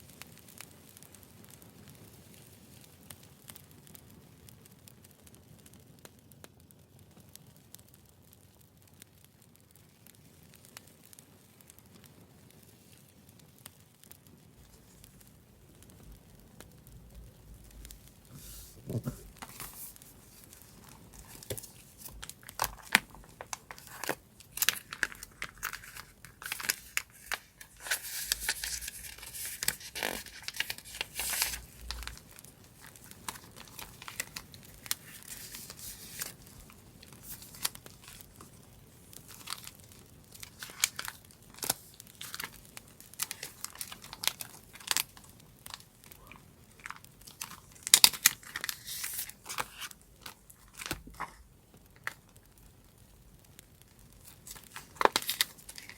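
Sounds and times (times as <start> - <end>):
paper rustling and crinkling: 17.4 - 52.4, 54.2 - 55.9
paper tearing: 18.3 - 32.2, 32.8 - 36.5, 46.9 - 49.9.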